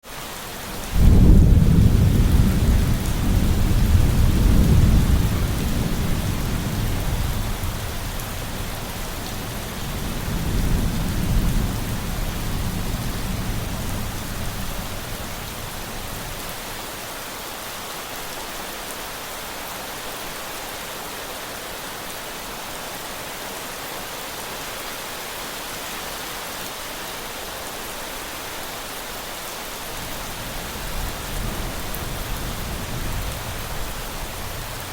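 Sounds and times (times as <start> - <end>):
heavy rain falling: 0.1 - 34.9
rolling thunder: 0.8 - 16.5, 30.0 - 34.9.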